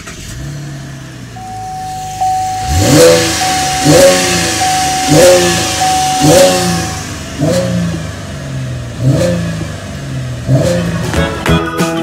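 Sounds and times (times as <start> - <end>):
car engine revving in blips: 0.0 - 11.6
steady high tone: 1.4 - 7.2.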